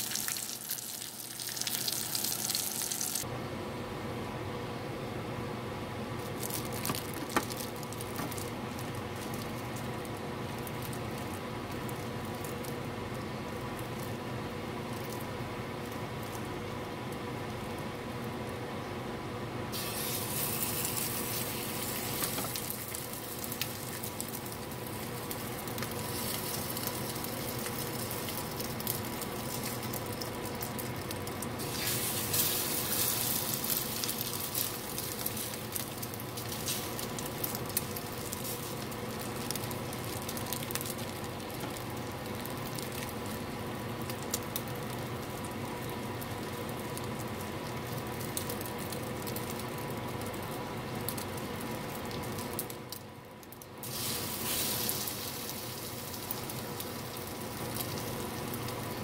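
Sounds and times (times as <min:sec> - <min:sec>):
bread sizzling in a frying pan: 0:00.0 - 0:03.3, 0:19.7 - 0:59.0
spattering crackles: 0:06.2 - 0:18.6, 0:19.8 - 0:59.0.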